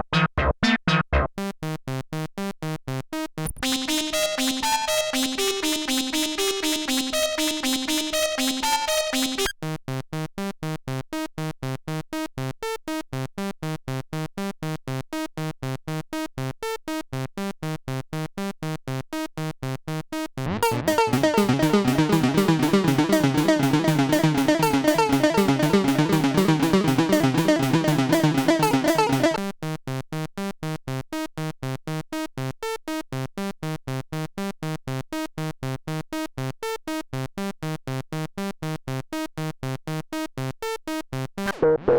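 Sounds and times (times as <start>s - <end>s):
synthesizer sequenced notes: 3.4s - 9.5s, 20.6s - 29.4s.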